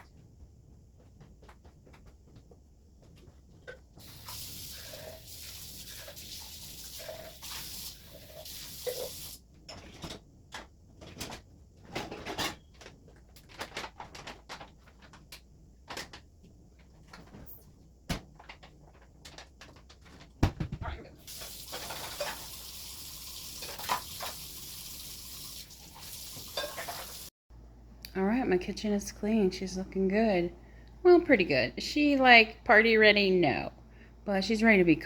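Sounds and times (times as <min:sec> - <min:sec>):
kitchen items clattering: 0:03.6 - 0:16.2, 0:18.2 - 0:27.3.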